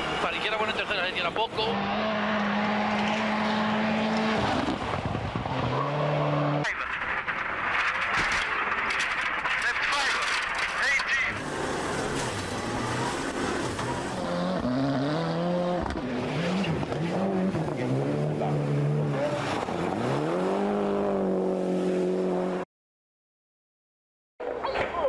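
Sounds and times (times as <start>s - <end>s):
car engine accelerating through gears: 1.7s - 6.6s, 11.4s - 22.6s.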